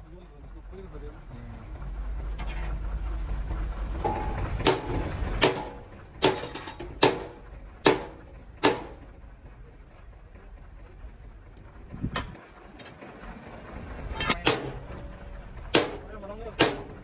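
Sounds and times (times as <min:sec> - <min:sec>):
hammer striking steel: 0:04.0 - 0:09.1, 0:14.2 - 0:17.0.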